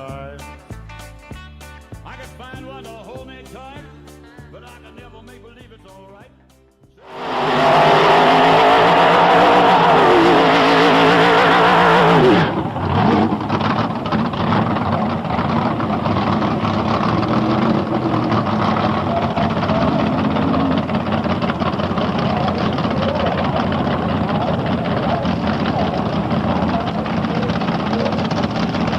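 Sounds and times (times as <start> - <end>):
pickup engine revving: 7.1 - 28.9.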